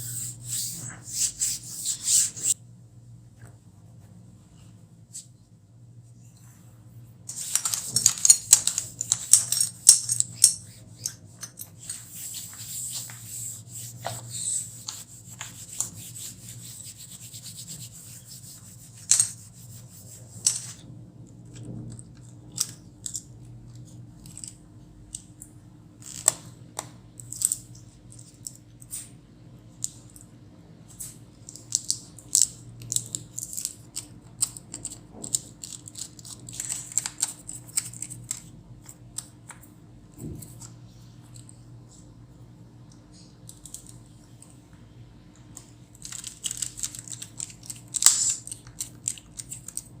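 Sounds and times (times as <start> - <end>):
hands rubbing laptop parts: 0.0 - 2.6, 10.3 - 20.8.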